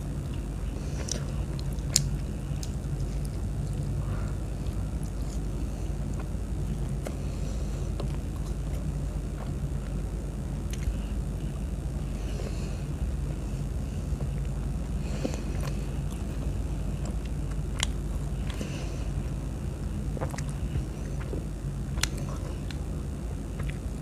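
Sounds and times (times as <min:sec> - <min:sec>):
steady low hum: 0:00.0 - 0:24.0
biting and chewing clicks: 0:17.0 - 0:18.7.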